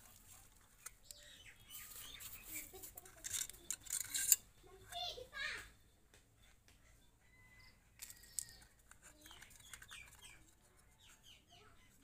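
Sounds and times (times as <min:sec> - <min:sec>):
faint bird chirps: 0:00.8 - 0:02.8, 0:04.6 - 0:12.0.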